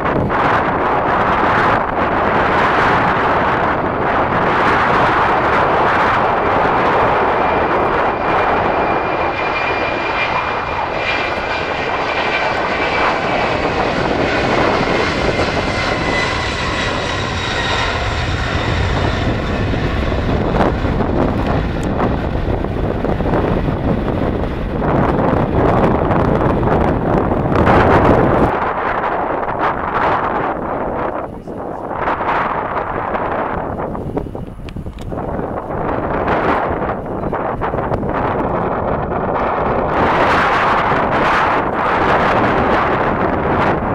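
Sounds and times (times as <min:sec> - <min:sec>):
jet engines passing: 0:00.0 - 0:43.9
wind on microphone: 0:00.0 - 0:43.9.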